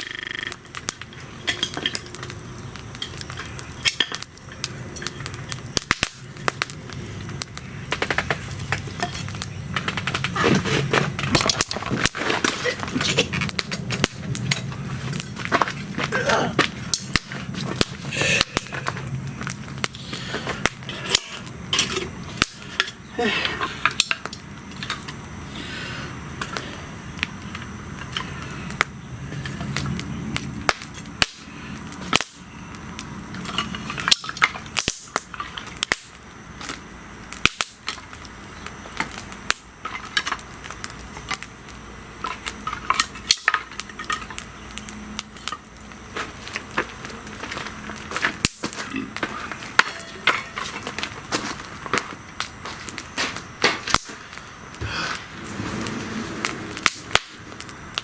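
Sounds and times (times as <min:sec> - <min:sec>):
burning wood popping: 0:00.0 - 0:58.0
wood fire crackling: 0:00.0 - 0:58.0.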